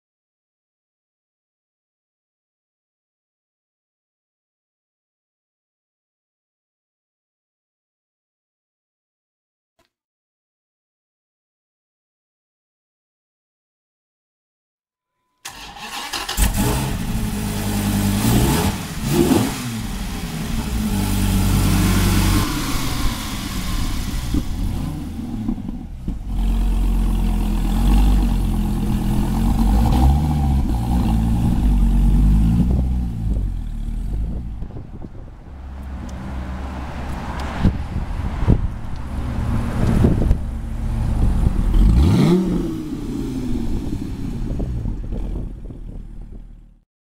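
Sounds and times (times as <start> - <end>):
car engine revving: 15.5 - 34.7, 35.5 - 46.8.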